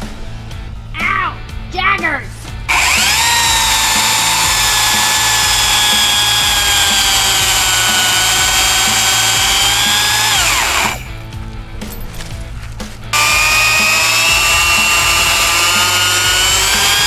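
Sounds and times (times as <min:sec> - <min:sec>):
chainsaw at full throttle: 0:02.7 - 0:11.1, 0:13.1 - 0:17.0.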